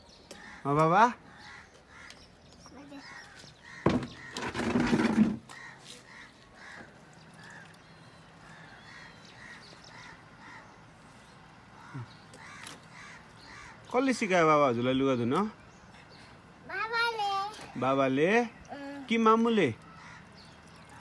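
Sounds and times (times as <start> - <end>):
bird calling: 0.0 - 14.2, 18.4 - 21.0.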